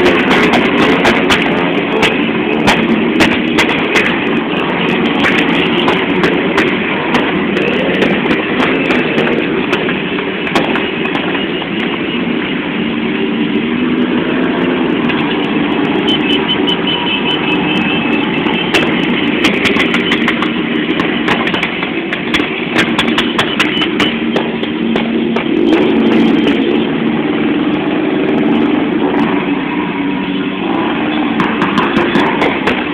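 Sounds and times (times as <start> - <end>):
sharp clicks and pops: 0.0 - 12.6, 14.9 - 27.0, 31.2 - 32.9
motorcycle engines revving: 0.0 - 32.9.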